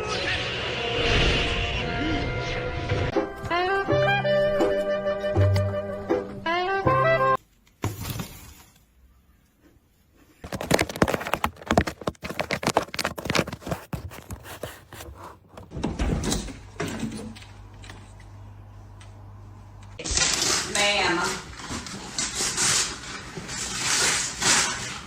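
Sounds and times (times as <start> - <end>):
knocks and clatters: 10.4 - 15.9.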